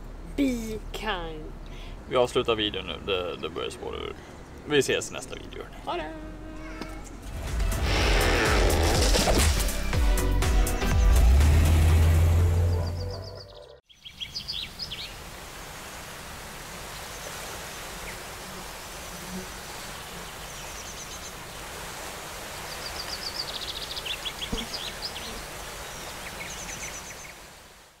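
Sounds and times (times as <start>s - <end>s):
steady outdoor hiss: 0.0s - 9.9s, 13.9s - 28.0s
small birds chirping: 12.6s - 15.2s, 18.9s - 21.6s, 22.6s - 27.4s.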